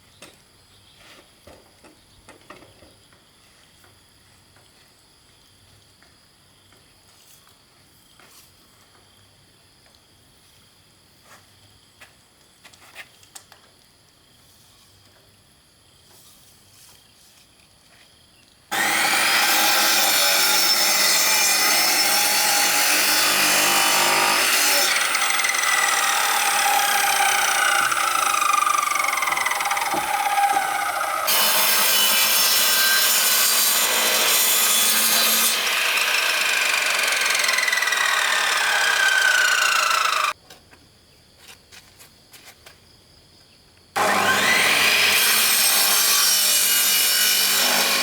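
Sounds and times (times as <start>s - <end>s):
power saw cutting wood: 18.7s - 40.4s, 44.0s - 48.0s.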